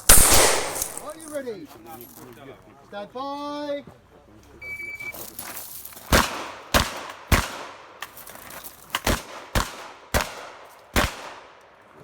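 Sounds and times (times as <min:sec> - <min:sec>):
shotgun clicks: 0:00.0 - 0:01.4
shotgun shots: 0:00.0 - 0:01.4.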